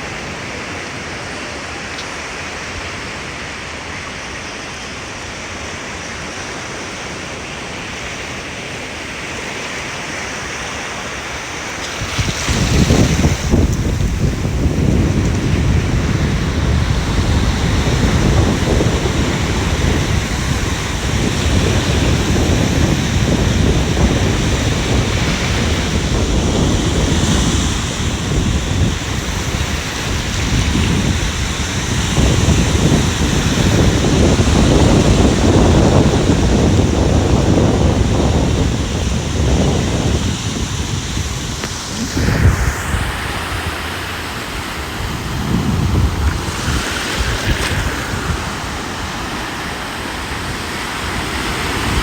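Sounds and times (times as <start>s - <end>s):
ocean surf breaking: 0.0s - 52.0s.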